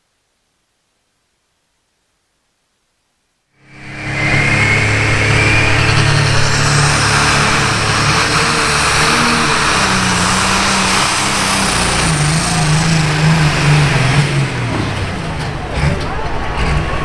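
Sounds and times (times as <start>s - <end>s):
tractor engine under heavy throttle: 3.6s - 17.0s.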